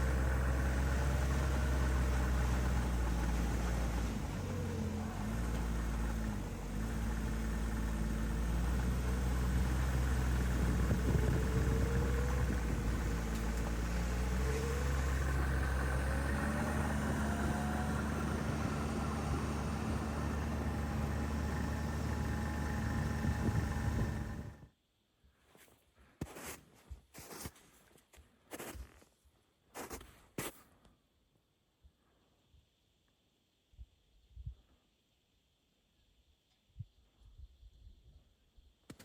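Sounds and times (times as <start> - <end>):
engine running: 0.0 - 24.7.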